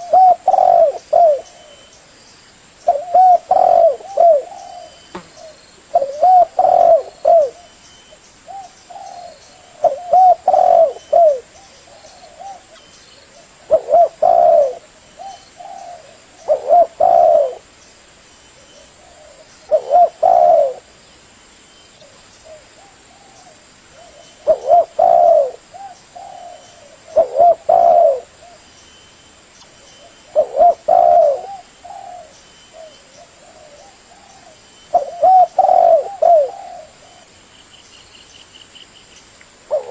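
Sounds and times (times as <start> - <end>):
dove cooing: 0.0 - 1.9, 2.9 - 7.8, 8.5 - 17.7, 18.6 - 20.9, 22.0 - 28.7, 30.0 - 37.4, 39.7 - 39.9.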